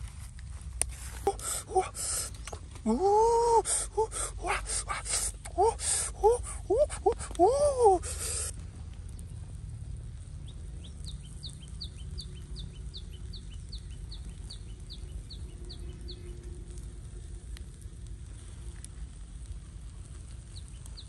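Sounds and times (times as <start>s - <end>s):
low steady rumble: 0.0s - 21.0s
wailing bird call: 1.2s - 8.5s.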